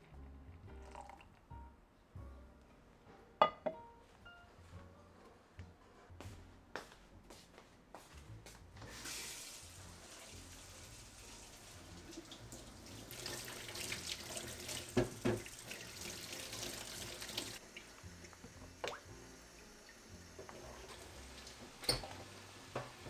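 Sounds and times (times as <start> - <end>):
tap water running into sink: 0.7 - 1.4, 8.8 - 23.0.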